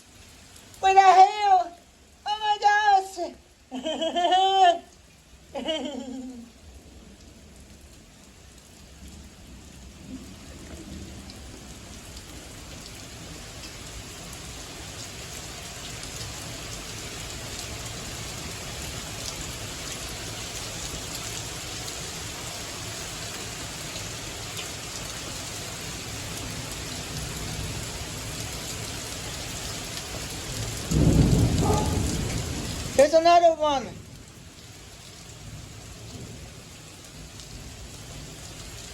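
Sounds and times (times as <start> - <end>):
hiss of rain: 0.0 - 38.9
hailstones ticking: 30.5 - 34.0.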